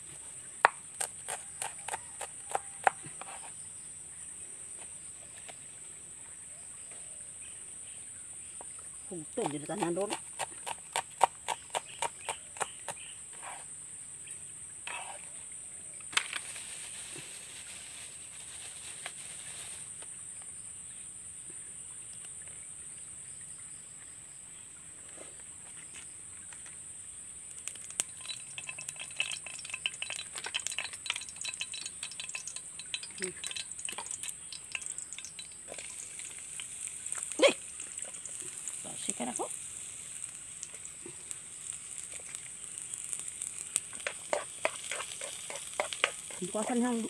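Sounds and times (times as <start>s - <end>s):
knife chopping a leaf: 0.6s - 3.5s, 9.4s - 13.6s
aromatics sizzling in oil: 7.5s - 20.1s, 27.1s - 47.0s.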